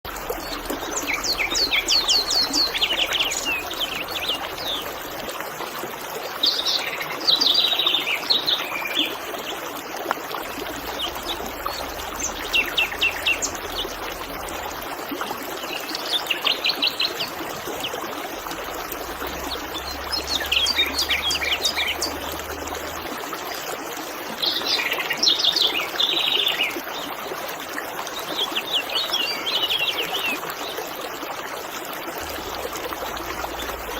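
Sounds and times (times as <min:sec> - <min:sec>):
songbird chirping: 0:00.1 - 0:05.3, 0:10.5 - 0:14.8, 0:15.6 - 0:22.9
river water babbling: 0:00.1 - 0:33.9.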